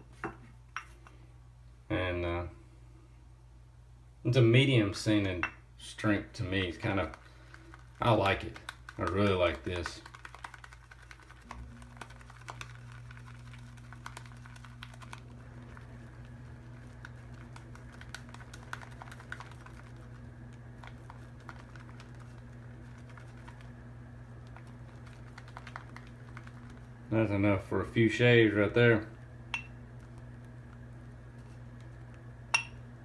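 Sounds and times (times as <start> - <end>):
steady low hum: 0.0 - 33.0
shaving brush swirling in lather: 6.7 - 27.3.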